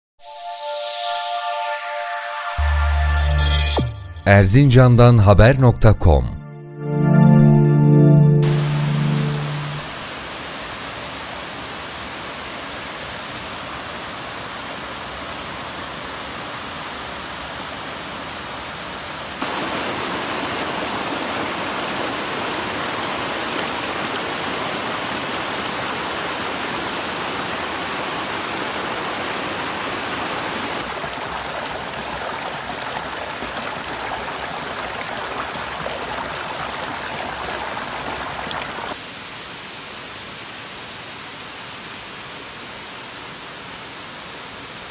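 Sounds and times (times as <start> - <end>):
waterfall rushing: 19.4 - 31.0.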